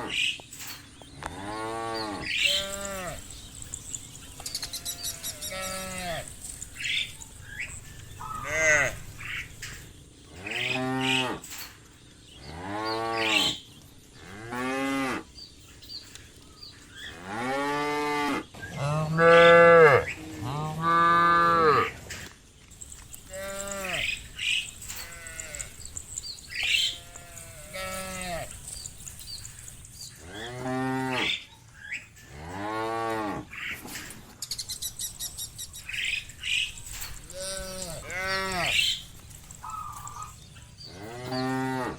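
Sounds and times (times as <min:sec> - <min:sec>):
cows mooing: 0:01.2 - 0:03.7, 0:04.4 - 0:11.5, 0:17.0 - 0:22.0, 0:23.1 - 0:31.5, 0:32.3 - 0:33.5, 0:35.9 - 0:41.9.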